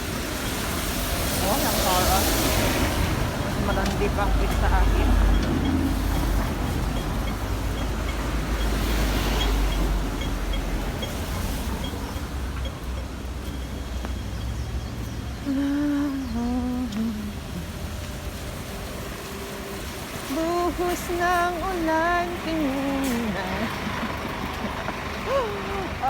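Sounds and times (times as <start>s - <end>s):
rain: 0.0s - 26.0s
traffic rumble: 0.0s - 26.0s
person humming: 15.4s - 17.8s, 25.2s - 26.0s.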